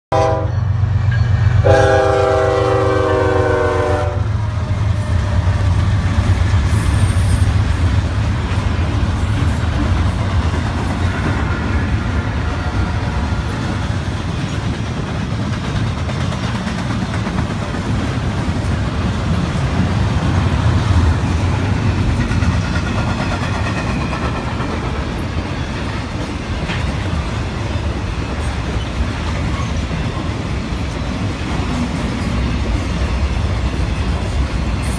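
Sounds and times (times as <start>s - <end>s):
locomotive horn chord: 0.1s - 0.7s, 1.6s - 4.5s
train rumbling past on rails: 0.1s - 34.9s.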